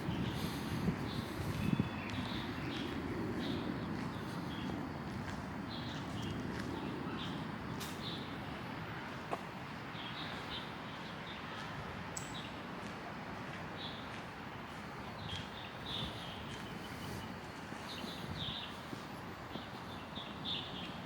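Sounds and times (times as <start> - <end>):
small birds chirping: 0.0 - 8.6, 9.8 - 12.7, 13.6 - 21.0.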